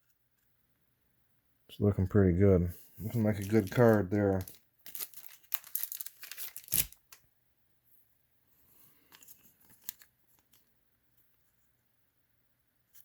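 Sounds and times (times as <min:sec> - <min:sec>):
plastic sleeve crinkling: 0:03.0 - 0:07.2, 0:09.1 - 0:10.7.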